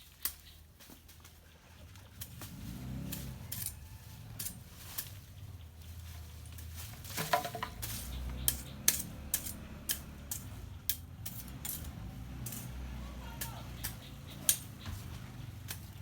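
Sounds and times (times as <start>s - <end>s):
hand tools knocking and clinking: 7.1s - 11.0s.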